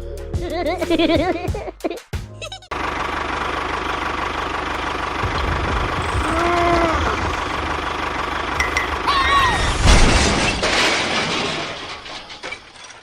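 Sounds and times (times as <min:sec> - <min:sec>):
small engine running: 0:02.7 - 0:09.4
crash or clatter: 0:05.2 - 0:13.0
voice-like calls: 0:06.0 - 0:07.8.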